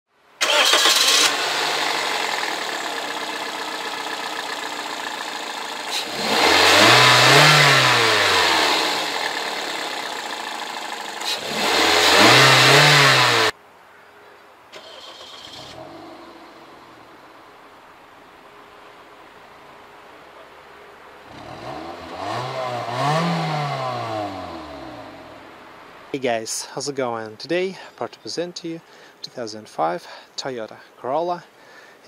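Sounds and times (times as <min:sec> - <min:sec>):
car engine revving: 0:00.4 - 0:13.6, 0:21.2 - 0:25.8.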